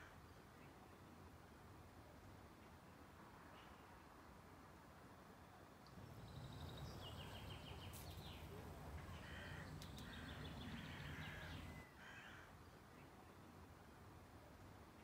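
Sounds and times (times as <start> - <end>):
low outdoor rumble: 5.9 - 11.8
birds chirping trills: 5.9 - 12.0.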